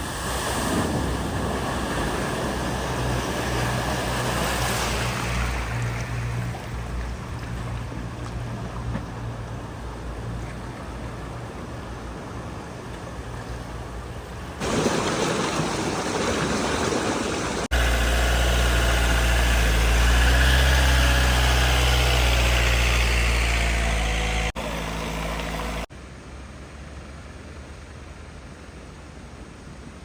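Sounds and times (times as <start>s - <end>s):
water splashing: 0.0s - 12.1s, 12.7s - 22.1s
car engine hum: 17.6s - 29.4s.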